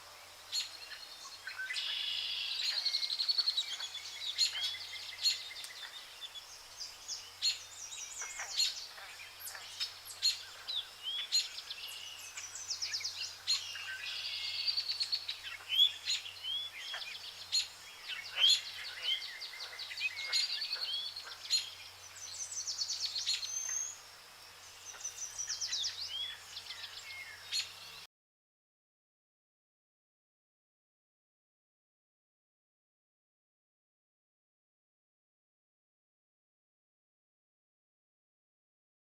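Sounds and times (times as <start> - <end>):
birds singing and calling: 0.1 - 28.1.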